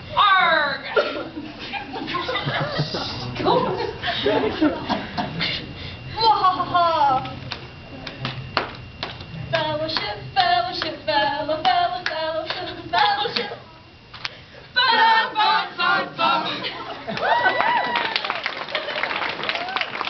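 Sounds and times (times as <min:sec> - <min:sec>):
hand claps: 0:07.2 - 0:10.9, 0:17.1 - 0:20.0
group singing a cheer: 0:14.8 - 0:17.2
people whooping: 0:14.9 - 0:20.0.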